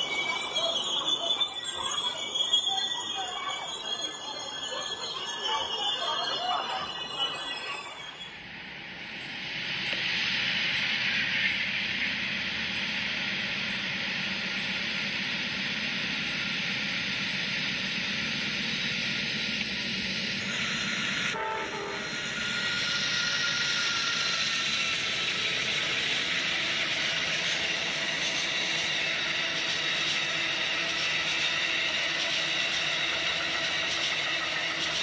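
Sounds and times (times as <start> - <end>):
train wheels on rails: 0.0 - 35.0
brief multi-tone pitched sound: 21.3 - 22.7.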